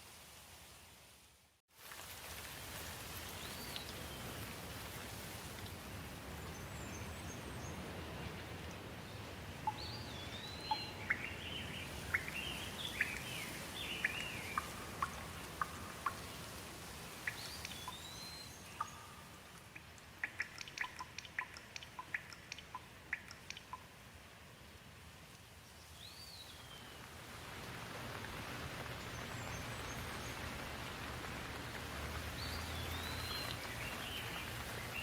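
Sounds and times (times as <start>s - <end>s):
steady rain: 0.0s - 35.0s
water dripping plinks: 3.4s - 4.4s, 9.5s - 24.1s, 31.6s - 35.0s.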